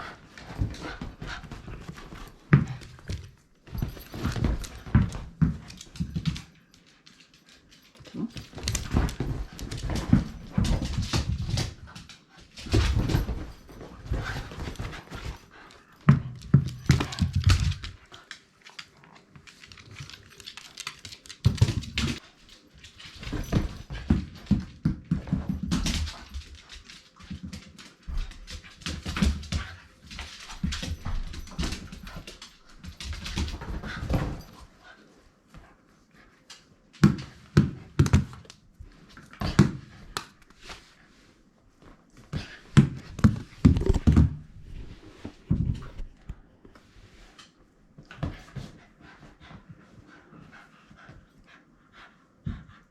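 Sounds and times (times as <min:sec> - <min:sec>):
dog scrabbling and thudding with ball: 0:00.4 - 0:06.4, 0:08.2 - 0:12.0, 0:12.6 - 0:15.4, 0:42.8 - 0:46.1.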